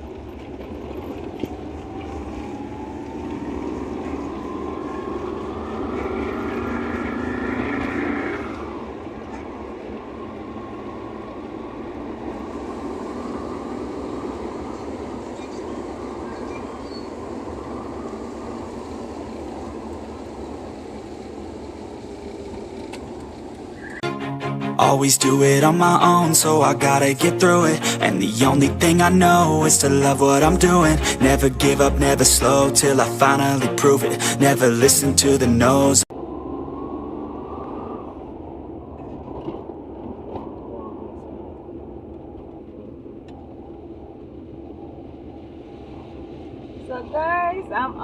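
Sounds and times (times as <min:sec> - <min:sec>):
tyre noise on wet road: 0:00.0 - 0:24.0
rising whine: 0:01.5 - 0:15.1, 0:23.8 - 0:38.9.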